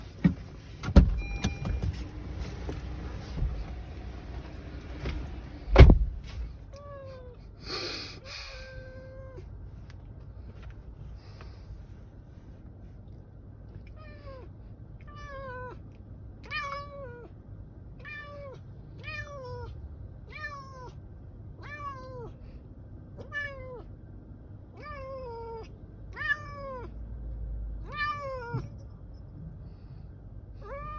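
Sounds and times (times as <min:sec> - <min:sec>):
cat meowing: 0:13.8 - 0:15.8, 0:16.4 - 0:17.3, 0:18.0 - 0:21.0, 0:21.6 - 0:22.4, 0:23.2 - 0:23.9, 0:24.7 - 0:27.0, 0:27.8 - 0:28.8, 0:30.6 - 0:30.9.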